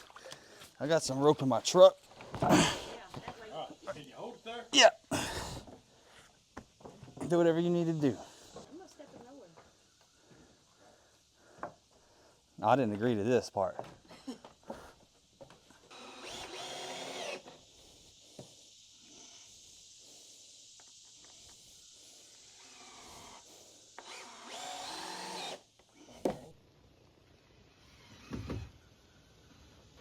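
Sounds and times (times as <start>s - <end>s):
power drill driving screws: 15.9s - 17.6s, 22.5s - 25.7s, 27.8s - 28.7s.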